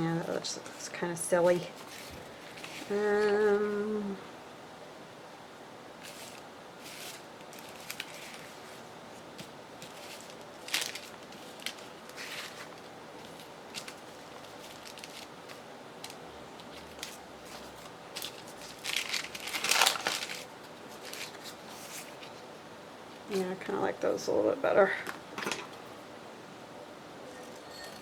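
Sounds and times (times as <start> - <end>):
paper rustling: 0.1 - 3.8, 6.0 - 22.5.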